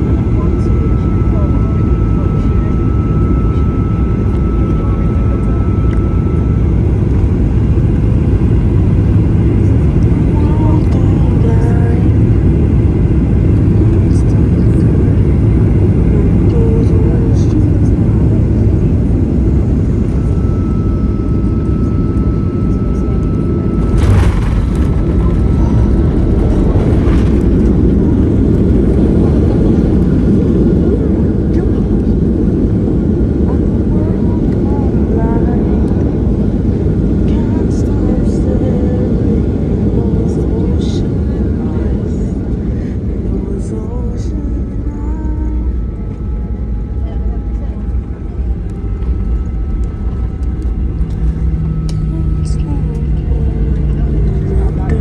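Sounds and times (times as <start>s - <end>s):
jet airliner rumble: 0.0s - 55.0s
faint steady whine: 16.4s - 55.0s.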